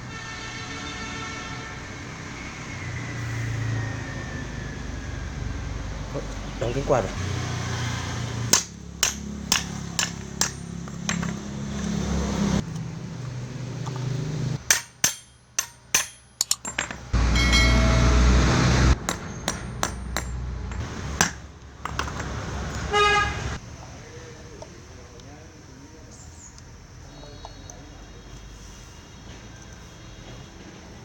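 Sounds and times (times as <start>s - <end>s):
hammer tapping on metal: 8.5s - 11.4s, 14.6s - 18.4s, 19.0s - 22.0s.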